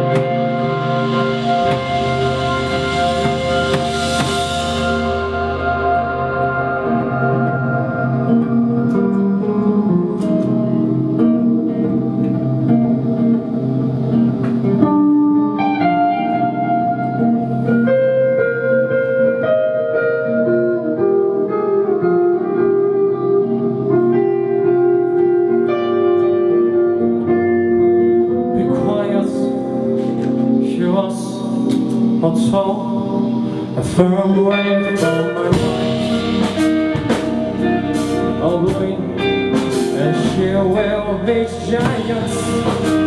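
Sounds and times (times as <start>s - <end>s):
guitar chords: 0.0s - 43.0s
live band instrumental: 0.0s - 43.0s.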